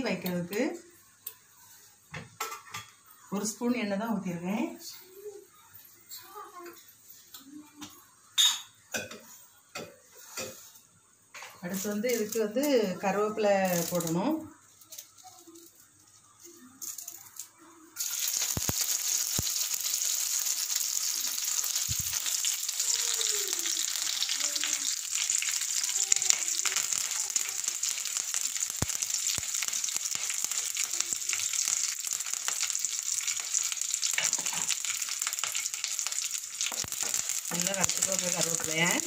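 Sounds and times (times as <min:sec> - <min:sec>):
leaves sizzling in hot oil: 0:10.1 - 0:39.0.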